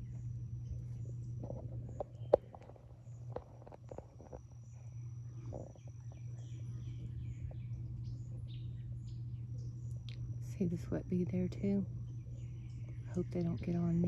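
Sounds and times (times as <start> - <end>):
high insect trill: 0.0 - 14.0
steady low hum: 0.0 - 14.0
bird chirps: 5.6 - 10.2, 12.0 - 14.0.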